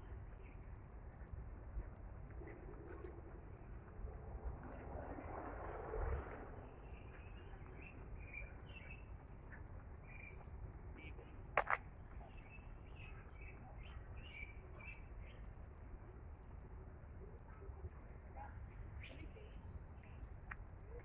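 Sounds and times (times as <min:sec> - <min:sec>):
birds chirping: 0:06.6 - 0:15.5.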